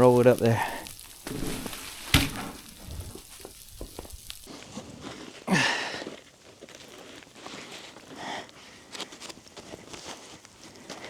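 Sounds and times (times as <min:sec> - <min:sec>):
log crunching and scraping: 0:00.0 - 0:08.1
log knocking: 0:01.1 - 0:04.4.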